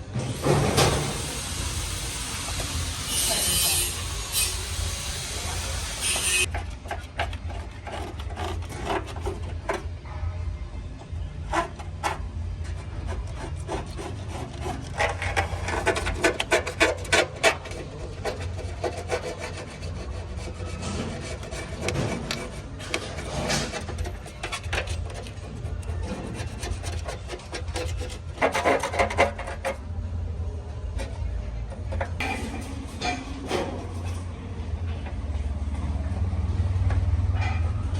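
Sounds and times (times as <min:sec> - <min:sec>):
hand tool rasping workpiece: 0:03.0 - 0:09.8, 0:11.5 - 0:29.7.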